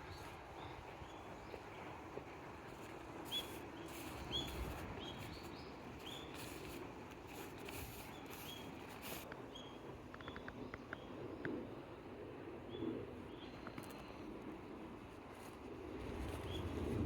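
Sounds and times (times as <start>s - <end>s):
small birds chirping: 2.6s - 11.2s.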